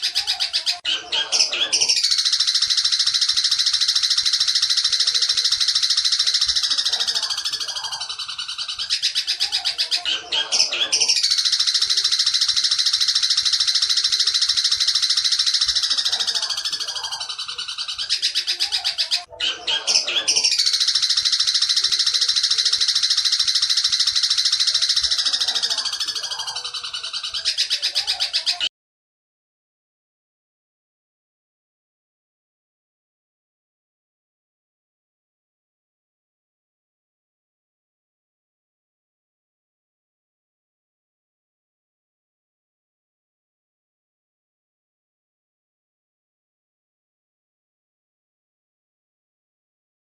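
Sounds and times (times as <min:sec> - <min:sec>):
bird chattering trills: 0:00.0 - 0:28.7.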